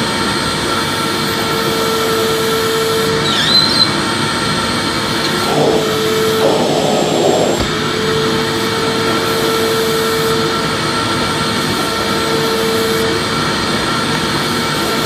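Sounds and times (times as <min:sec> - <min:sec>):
vacuum cleaner running: 0:00.0 - 0:15.0
high squeak: 0:03.2 - 0:04.1.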